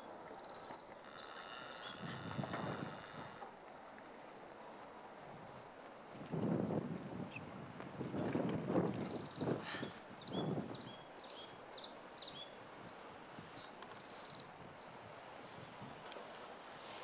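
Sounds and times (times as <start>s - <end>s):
wind gusts on microphone: 1.9s - 3.4s, 5.2s - 11.0s, 14.6s - 16.1s.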